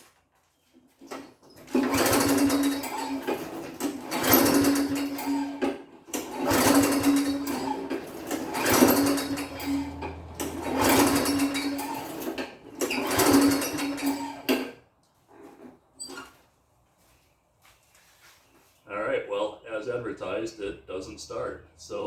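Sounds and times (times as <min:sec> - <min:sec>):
lawn mower pull-starter whirring: 0:00.8 - 0:16.4.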